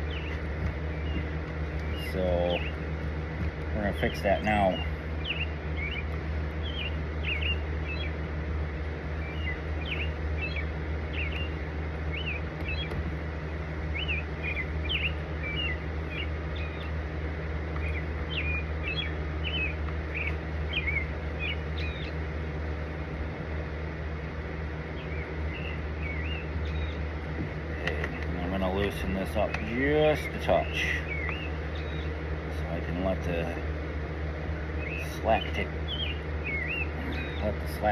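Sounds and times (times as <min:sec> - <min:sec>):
small birds chirping: 0:00.0 - 0:37.9
steady low hum: 0:00.0 - 0:37.9.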